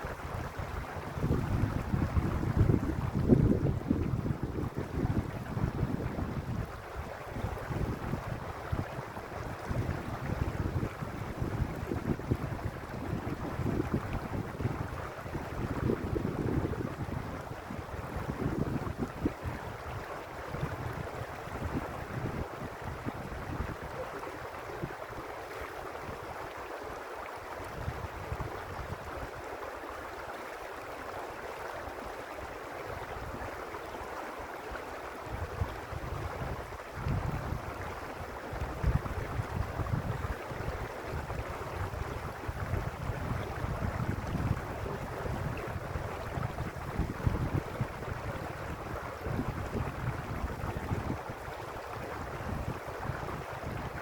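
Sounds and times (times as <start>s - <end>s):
wind buffeting microphone: 0.0s - 25.3s, 27.6s - 29.4s, 35.2s - 54.0s
stream water rushing: 0.0s - 54.0s.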